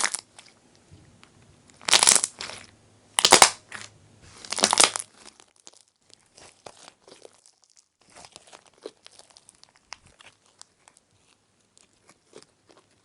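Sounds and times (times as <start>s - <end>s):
slime crackling and popping: 0.0s - 0.5s, 1.7s - 13.0s.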